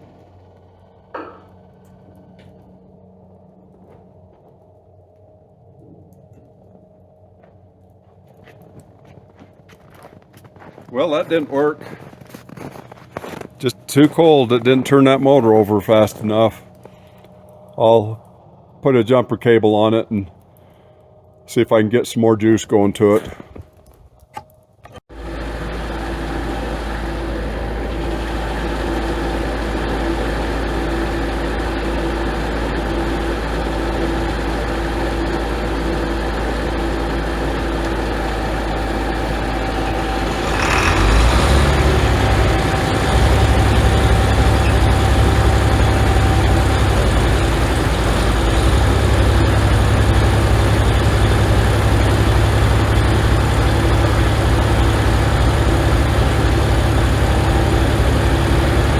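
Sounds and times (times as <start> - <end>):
tractor engine rumbling: 10.9 - 58.9
tractor engine cranking: 24.2 - 58.9.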